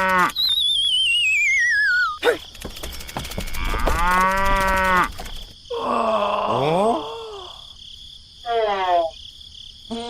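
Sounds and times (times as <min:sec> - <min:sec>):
cartoon whistle sliding downward: 0:00.2 - 0:02.2.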